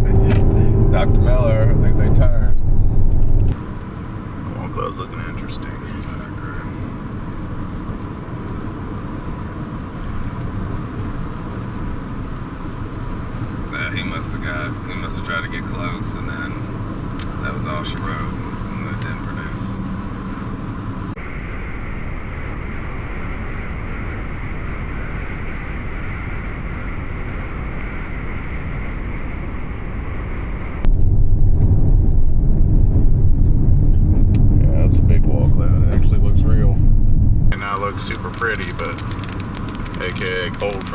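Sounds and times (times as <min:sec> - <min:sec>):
heavy low rumble: 0:00.0 - 0:24.5, 0:29.6 - 0:40.9
road and engine noise in vehicle: 0:00.0 - 0:40.9
faint high ticks: 0:05.4 - 0:13.8, 0:37.6 - 0:40.9.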